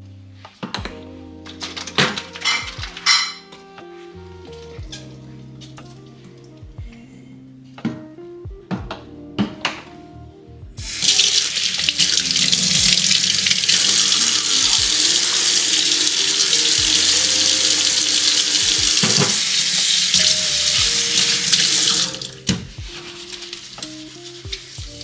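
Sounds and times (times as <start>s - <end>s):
soft background music: 0.0s - 25.0s
tap running into sink: 10.8s - 22.7s.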